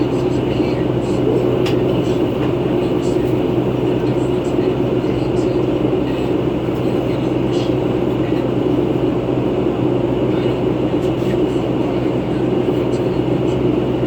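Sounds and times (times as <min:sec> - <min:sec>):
bus engine drone: 0:00.0 - 0:14.0.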